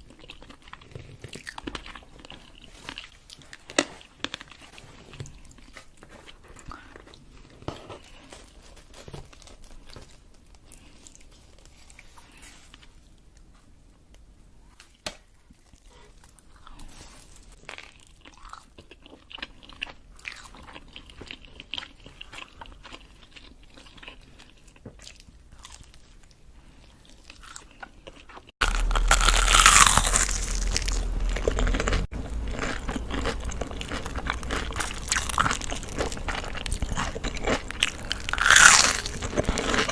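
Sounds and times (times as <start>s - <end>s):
crisp bites and chewing: 0.0s - 7.2s, 27.1s - 39.9s.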